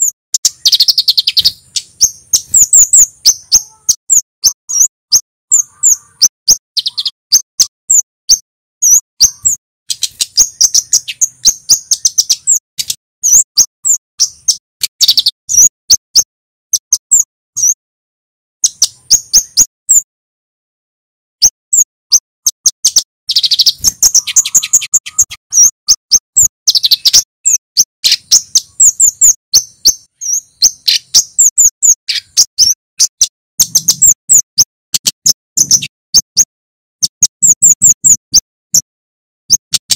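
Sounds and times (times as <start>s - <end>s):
bird chirping: 0.0s - 17.8s, 18.6s - 20.1s, 21.4s - 39.9s
bird rattling trills: 22.8s - 27.2s.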